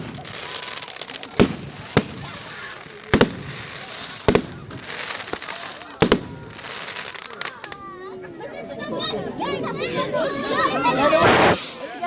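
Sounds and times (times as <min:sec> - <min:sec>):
firework bangs: 0:00.0 - 0:07.6, 0:11.1 - 0:12.0
crackling hiss: 0:11.0 - 0:12.0.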